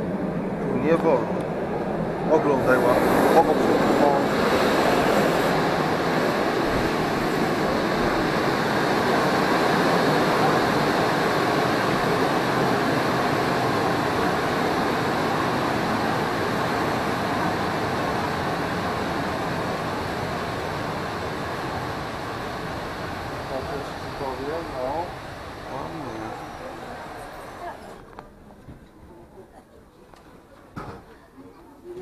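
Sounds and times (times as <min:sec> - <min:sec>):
train wheels on rails: 0:00.8 - 0:31.2.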